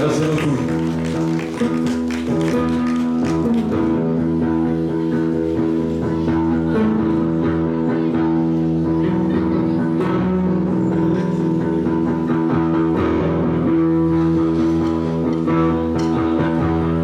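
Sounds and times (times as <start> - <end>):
bass guitar: 0.0 - 17.0
electric guitar chords: 0.0 - 17.0.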